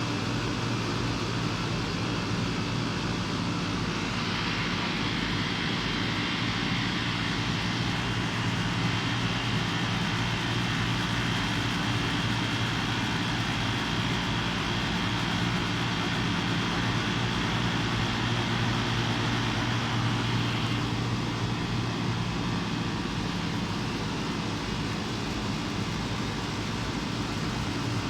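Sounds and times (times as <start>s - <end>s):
air conditioner electrical hum: 0.0s - 28.0s
fan air rushing: 0.0s - 28.0s.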